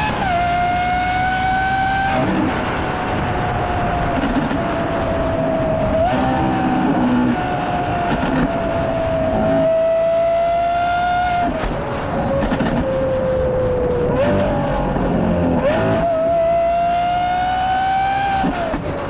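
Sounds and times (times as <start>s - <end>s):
sports car engine revving: 0.0s - 2.8s, 5.6s - 11.6s, 14.1s - 18.8s.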